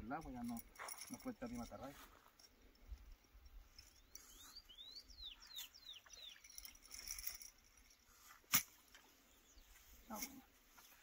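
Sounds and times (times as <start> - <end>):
bird whistling calls: 4.1 - 6.6.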